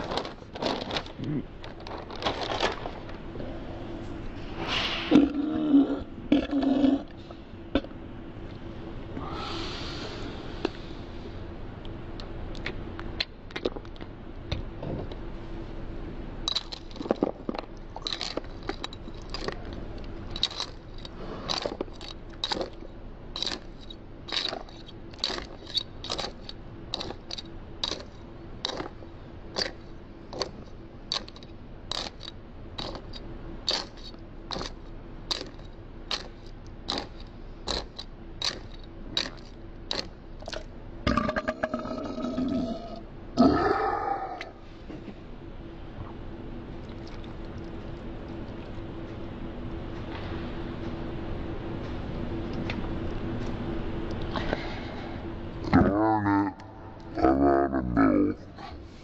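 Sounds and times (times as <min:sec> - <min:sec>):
dry cereal crunching: 0:00.0 - 0:03.2, 0:16.5 - 0:22.8, 0:23.4 - 0:33.1, 0:33.7 - 0:40.7.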